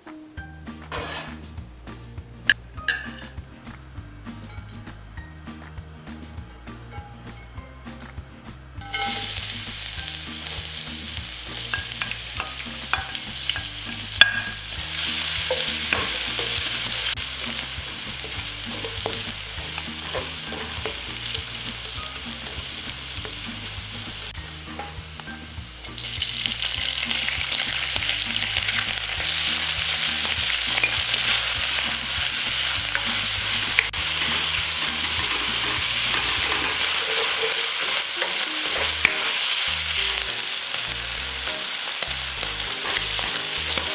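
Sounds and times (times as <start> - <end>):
food sizzling in a pan: 0.9 - 1.5, 2.8 - 5.0, 8.8 - 43.9
utensil scraping a pan: 0.9 - 1.5, 11.5 - 23.7, 26.4 - 40.4, 42.3 - 43.9.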